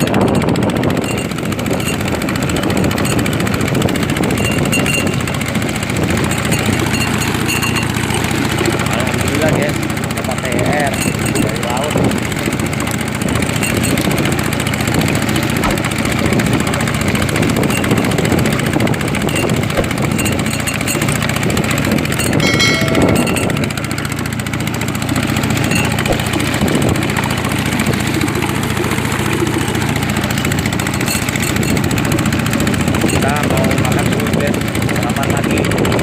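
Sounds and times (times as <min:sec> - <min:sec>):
boat engine running: 0:00.0 - 0:36.0
high-pitched tone: 0:22.4 - 0:23.8.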